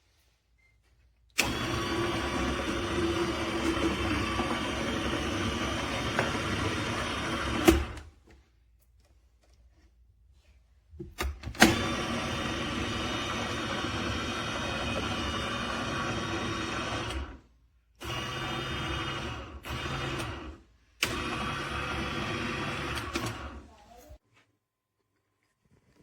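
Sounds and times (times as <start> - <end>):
electric juicer motor running: 1.4 - 8.1, 11.6 - 17.4, 18.0 - 23.7.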